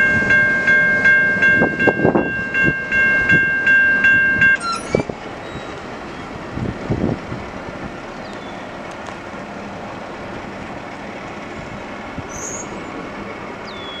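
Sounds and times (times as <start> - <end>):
freight train rolling: 0.0 - 14.0.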